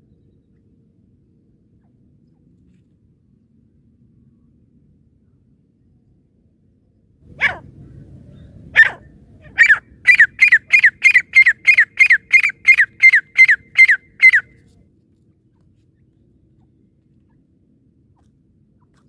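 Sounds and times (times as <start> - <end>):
francolin calling: 8.8 - 14.5.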